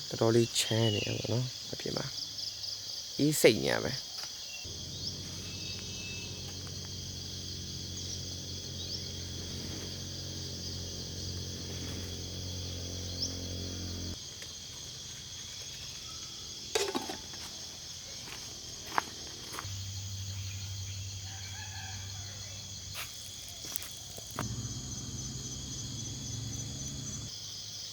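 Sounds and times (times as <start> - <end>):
crickets chirping: 0.0 - 27.9.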